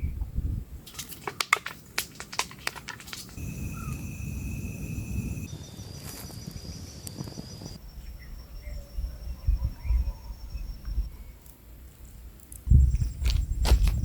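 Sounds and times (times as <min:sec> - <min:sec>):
insects trilling: 0:03.2 - 0:14.0.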